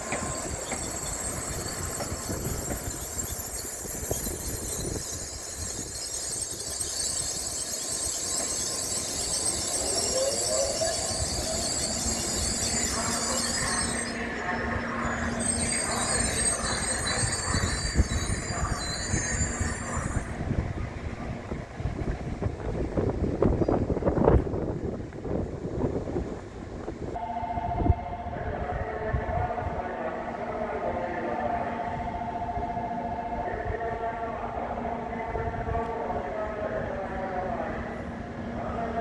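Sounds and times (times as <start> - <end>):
high-pitched train squeal: 0.0 - 20.5.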